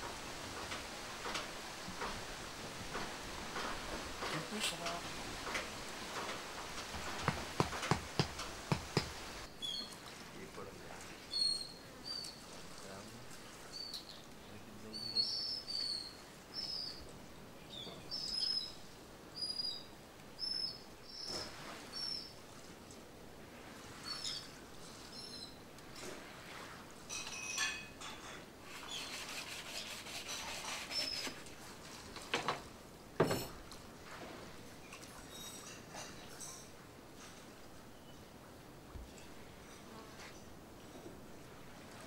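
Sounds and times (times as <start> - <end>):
sharp knocks: 7.0 - 9.3.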